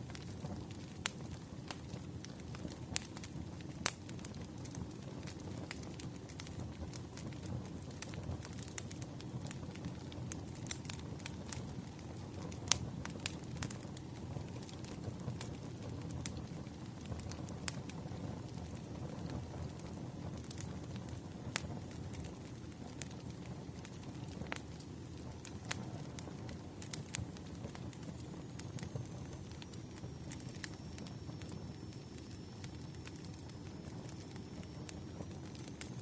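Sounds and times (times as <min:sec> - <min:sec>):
campfire crackling: 0:00.0 - 0:36.0
low fire rumble: 0:00.0 - 0:36.0.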